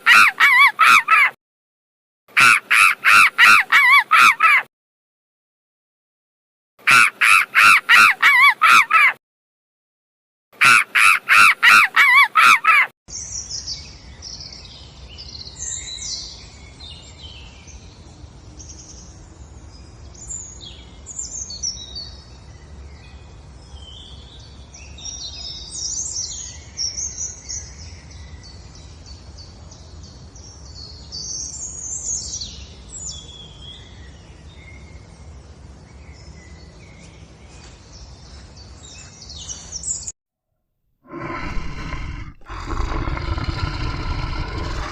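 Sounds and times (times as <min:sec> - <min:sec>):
loud harsh bird calls: 0:00.0 - 0:01.4, 0:02.4 - 0:04.7, 0:06.8 - 0:09.2, 0:10.6 - 0:12.9, 0:41.1 - 0:44.9
small birds chirping: 0:41.1 - 0:44.9.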